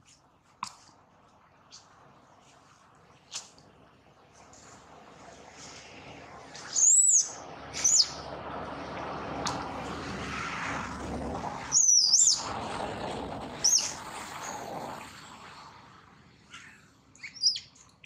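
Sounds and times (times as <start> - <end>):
baby monkey squealing: 11.7 - 12.4, 13.6 - 14.0, 17.2 - 17.7.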